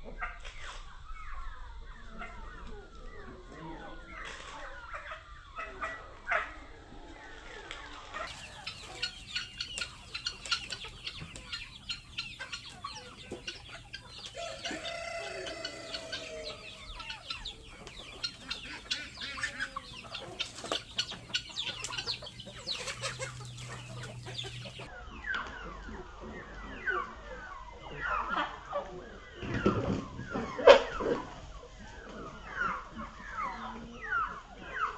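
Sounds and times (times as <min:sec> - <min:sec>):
chickens clucking: 0:00.0 - 0:34.9
rooster crowing: 0:14.2 - 0:17.0.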